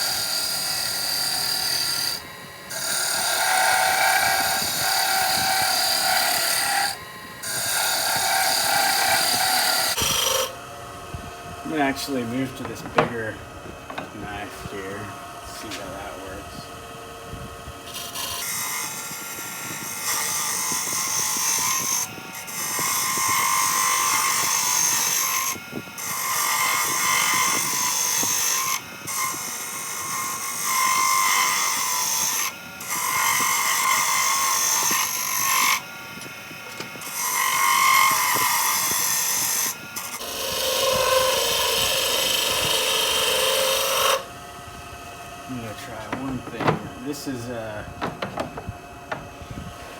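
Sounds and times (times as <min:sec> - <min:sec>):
chisel scraping wood: 0:00.0 - 0:10.5, 0:11.7 - 0:14.8, 0:45.5 - 0:49.9
wood lathe spinning: 0:00.0 - 0:10.7, 0:11.6 - 0:16.8, 0:17.8 - 0:44.3, 0:45.2 - 0:49.9.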